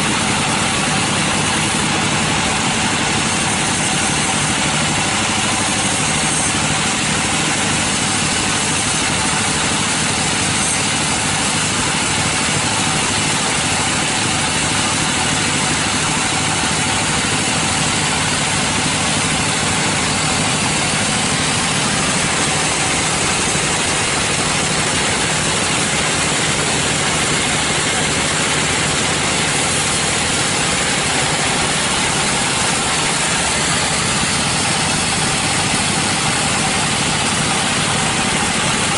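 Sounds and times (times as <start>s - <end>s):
sawmill machinery droning: 0.0s - 38.9s.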